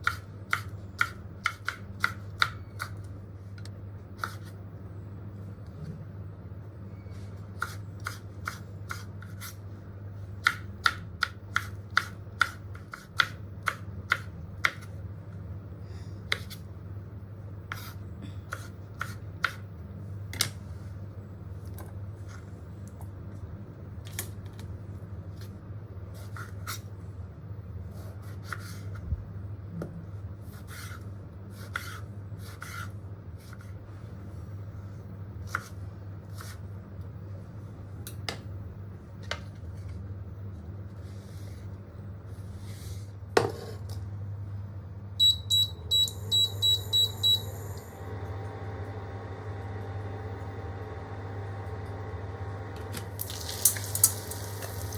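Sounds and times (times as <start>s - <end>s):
appliance running: 43.9s - 54.9s
low hum: 44.2s - 53.2s
electronic keypad beeps: 45.2s - 47.7s.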